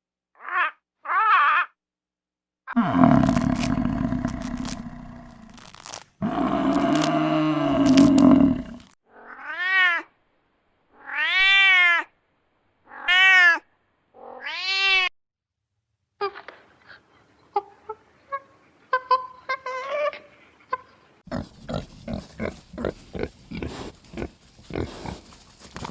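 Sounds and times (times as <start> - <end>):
harsh drawn-out animal call: 2.8 - 9.5, 21.3 - 25.9.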